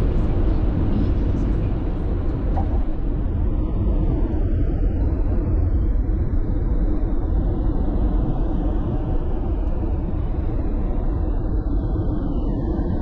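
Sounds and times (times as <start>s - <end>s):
car road noise rumble: 0.0s - 6.0s.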